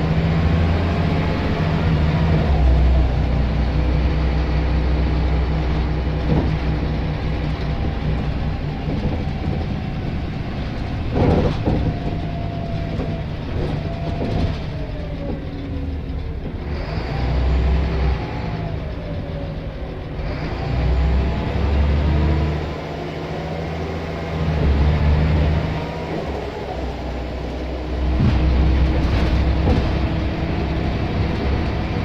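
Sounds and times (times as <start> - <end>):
bus engine drone: 0.0 - 32.0
knocks from bus body: 10.9 - 15.5, 28.0 - 30.8.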